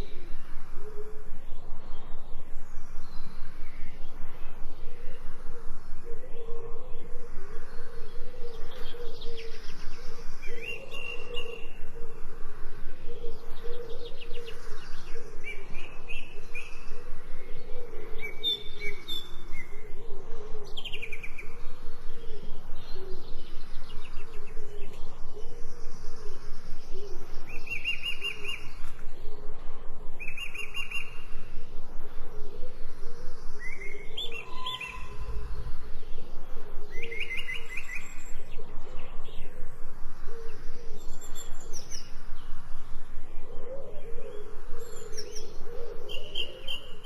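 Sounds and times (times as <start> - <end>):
birds chirping: 30.0 - 47.0.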